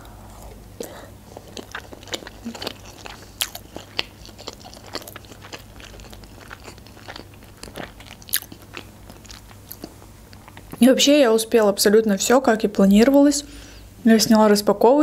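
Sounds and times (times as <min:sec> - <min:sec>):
person chewing food: 0:00.0 - 0:10.8.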